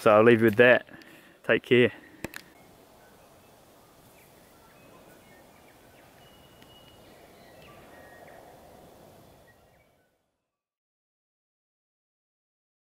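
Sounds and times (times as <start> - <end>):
thin bird calls and whistles: 2.6 - 10.6.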